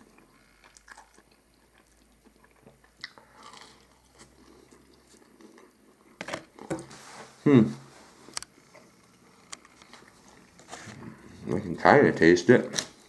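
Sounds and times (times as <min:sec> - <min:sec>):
person chewing crispy chicken: 0:00.0 - 0:06.6.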